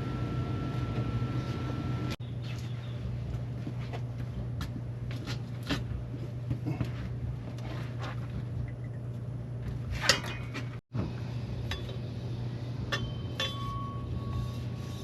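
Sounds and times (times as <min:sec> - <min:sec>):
low hum: 0:00.0 - 0:15.0
steel pipes clinking: 0:12.9 - 0:15.0.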